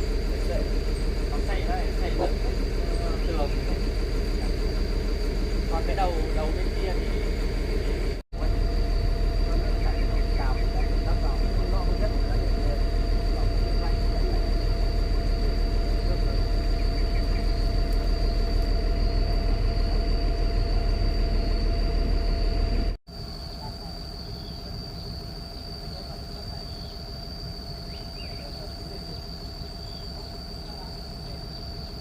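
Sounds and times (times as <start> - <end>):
excavator diesel engine running: 0.0 - 23.0
high whine: 0.0 - 23.0.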